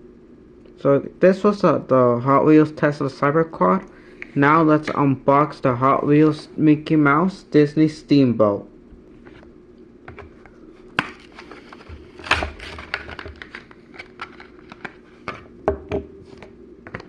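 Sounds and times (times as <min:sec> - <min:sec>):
plastic packaging crinkling: 0:11.0 - 0:15.2.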